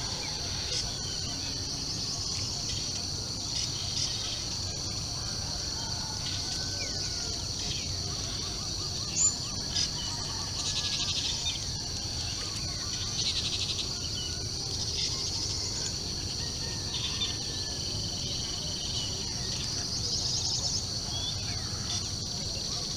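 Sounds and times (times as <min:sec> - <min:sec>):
birds calling and trilling: 0:00.0 - 0:22.9
insects droning: 0:00.0 - 0:22.9.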